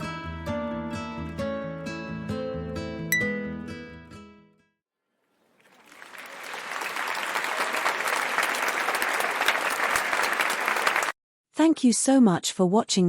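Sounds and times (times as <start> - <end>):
crowd applause: 5.5 - 11.2.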